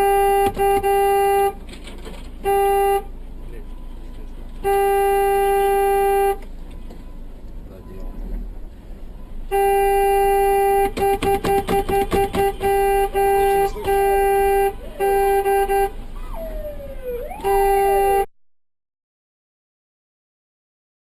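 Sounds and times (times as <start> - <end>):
car horn blaring: 0.0 - 1.6, 2.4 - 4.0, 4.6 - 7.2, 9.4 - 16.7, 17.3 - 18.3.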